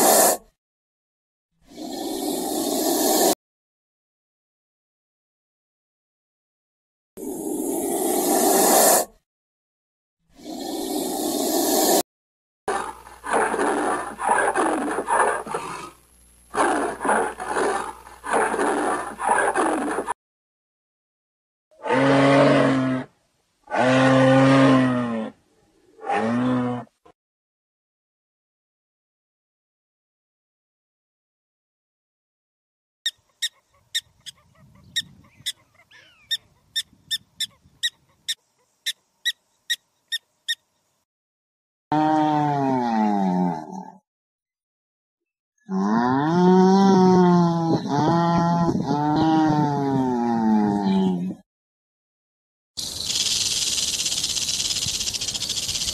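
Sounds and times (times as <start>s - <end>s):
animal roaring calls: 12.7s - 20.2s, 21.8s - 27.0s, 41.9s - 44.0s, 45.7s - 51.4s
bird sharp high calls: 33.1s - 40.6s, 52.8s - 55.9s.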